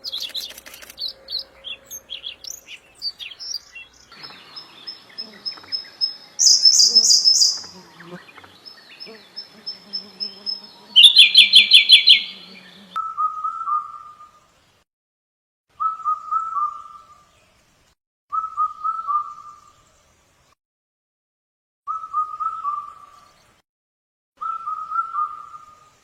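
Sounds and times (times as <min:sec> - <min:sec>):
songbirds chirping: 0:00.0 - 0:14.7
low repeated bird whistle: 0:13.0 - 0:14.4, 0:15.8 - 0:17.3, 0:18.3 - 0:19.7, 0:21.9 - 0:23.3, 0:24.4 - 0:26.0.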